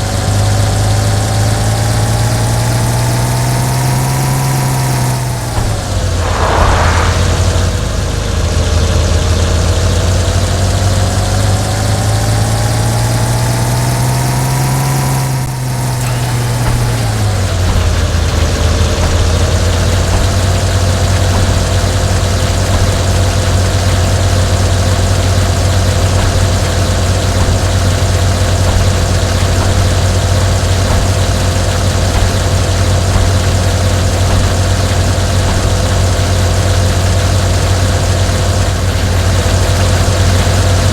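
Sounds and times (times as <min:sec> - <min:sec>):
engine running near idle: 0:00.0 - 0:40.9
brief rushing noise: 0:05.3 - 0:08.9.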